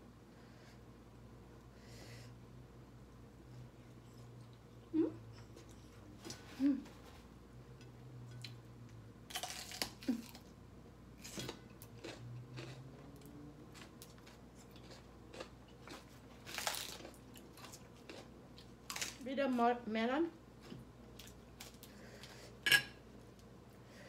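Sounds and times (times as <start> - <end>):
person chewing crunchy food: 9.3 - 10.6, 11.2 - 19.2.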